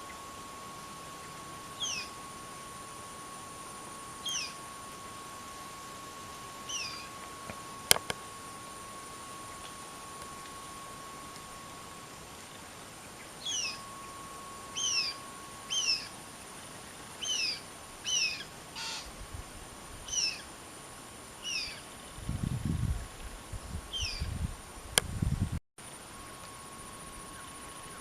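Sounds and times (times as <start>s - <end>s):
parakeets calling: 1.8s - 2.2s, 4.2s - 4.6s, 6.6s - 7.2s, 13.1s - 16.2s, 17.2s - 19.1s, 20.0s - 20.5s, 21.4s - 21.8s, 23.9s - 24.2s.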